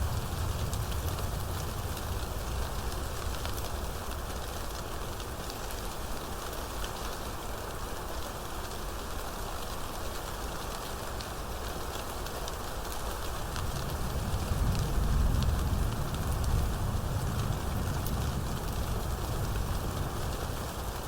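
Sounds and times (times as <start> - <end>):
rain hissing: 0.0 - 5.8, 13.0 - 21.0.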